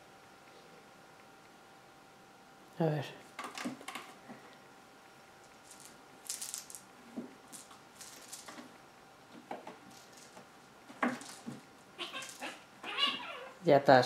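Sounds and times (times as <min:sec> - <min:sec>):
cats play-fighting rustles: 0:05.3 - 0:13.6.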